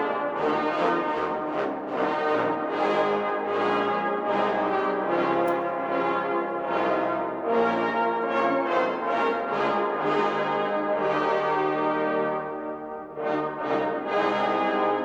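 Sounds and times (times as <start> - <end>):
brass band playing slow chords: 0.0 - 15.0.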